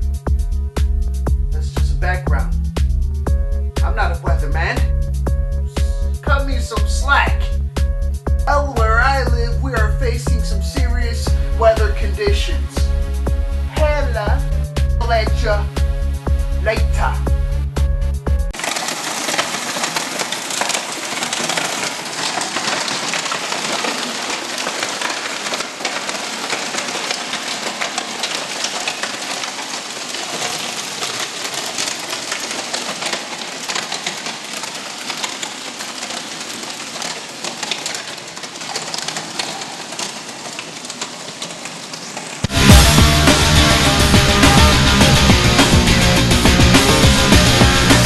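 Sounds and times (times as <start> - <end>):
hailstones clattering: 5.7 - 7.6, 18.5 - 48.0.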